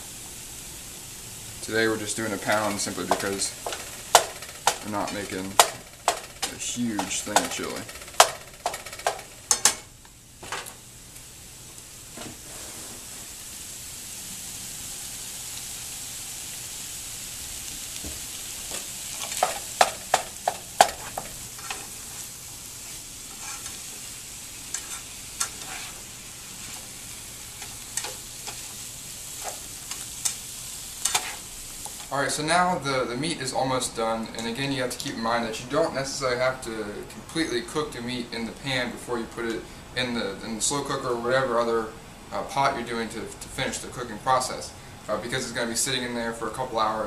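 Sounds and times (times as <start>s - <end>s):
meat sizzling in a frying pan: 0.0s - 36.2s.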